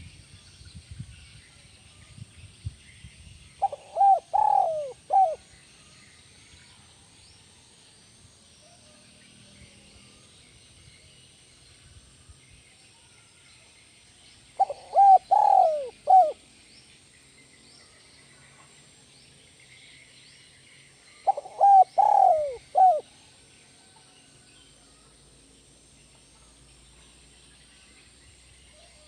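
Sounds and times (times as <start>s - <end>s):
small birds chirping faintly: 0.0s - 29.0s
dove cooing: 3.6s - 5.4s, 14.6s - 16.4s, 21.2s - 23.0s.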